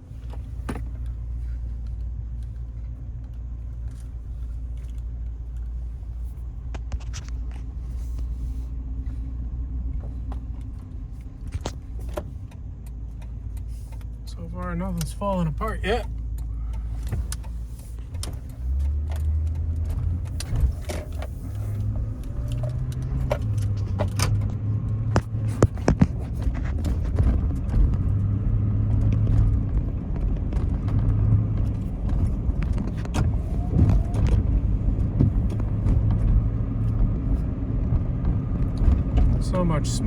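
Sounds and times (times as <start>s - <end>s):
engine and road drone in cab: 0.0s - 40.0s
light clicks and rattles: 9.9s - 28.2s.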